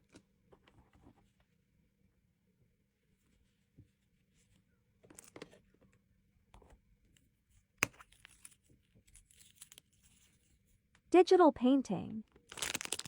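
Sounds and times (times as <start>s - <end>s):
packaging crinkling and rustling: 12.3s - 13.0s.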